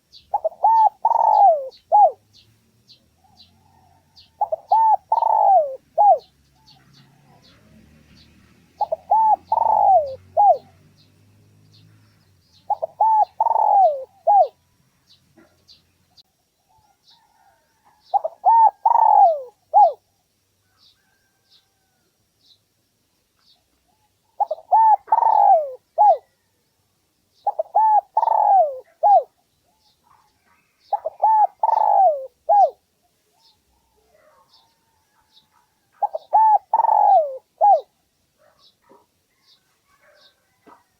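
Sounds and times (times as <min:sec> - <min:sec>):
dove cooing: 0:00.0 - 0:02.2, 0:03.2 - 0:07.9, 0:08.7 - 0:10.8, 0:12.6 - 0:14.6, 0:16.7 - 0:20.1, 0:24.0 - 0:26.4, 0:27.4 - 0:30.2, 0:30.9 - 0:35.4, 0:36.0 - 0:40.9.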